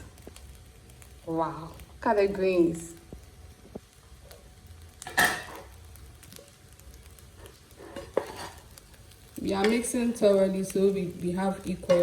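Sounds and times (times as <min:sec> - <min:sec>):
faint sizzle: 0:00.0 - 0:12.0
wooden spoon stirring rice in pan: 0:05.4 - 0:12.0
spoon knocking pan: 0:07.9 - 0:08.7, 0:11.8 - 0:12.0.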